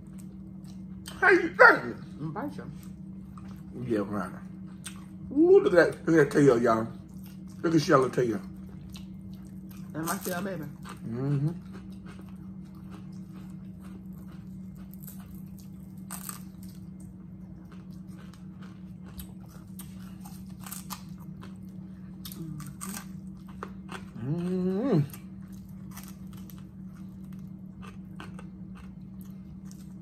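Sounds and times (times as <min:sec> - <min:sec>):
crunching and wet chewing: 0:00.0 - 0:01.2, 0:02.0 - 0:30.0
steady low hum: 0:00.0 - 0:30.0.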